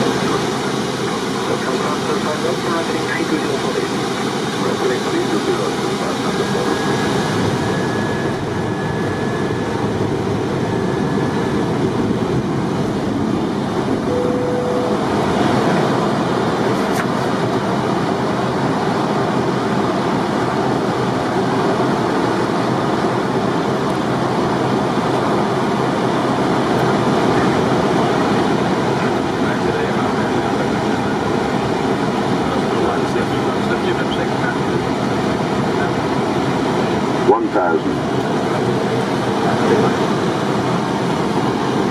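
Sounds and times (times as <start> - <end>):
airflow and engine noise in cockpit: 0.0 - 41.9
short faint tone: 14.0 - 15.6.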